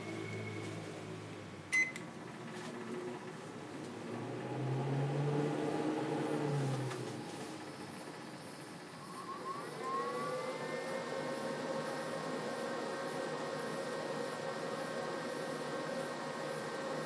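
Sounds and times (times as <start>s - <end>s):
microwave motor whine: 0.0s - 17.0s.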